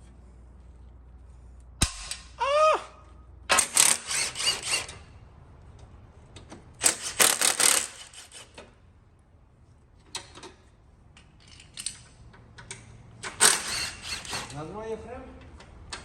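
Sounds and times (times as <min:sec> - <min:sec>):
pneumatic impact wrench hammering: 0:01.8 - 0:02.3, 0:03.5 - 0:05.1, 0:06.8 - 0:08.7, 0:13.2 - 0:14.5.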